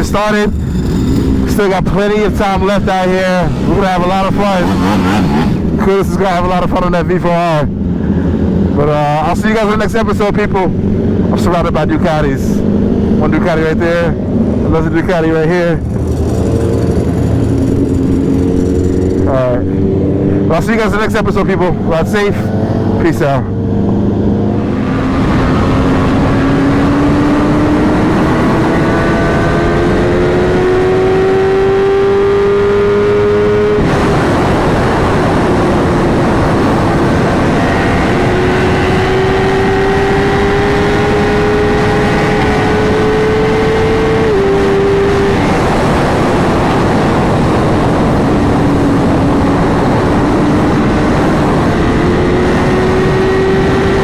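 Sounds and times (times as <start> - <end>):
motorcycle engine running: 0.0 - 6.7, 12.6 - 21.9
wind noise: 0.0 - 54.0.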